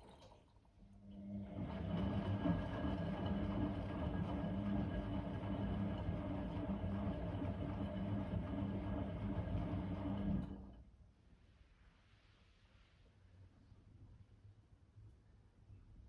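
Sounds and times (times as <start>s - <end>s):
washing machine motor hum: 1.0s - 10.8s.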